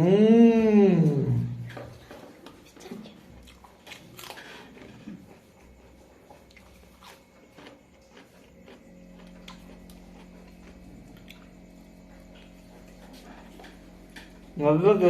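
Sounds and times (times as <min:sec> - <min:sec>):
person chewing chicken: 0:01.8 - 0:14.6
crunchy bites: 0:03.4 - 0:05.3, 0:06.4 - 0:12.6.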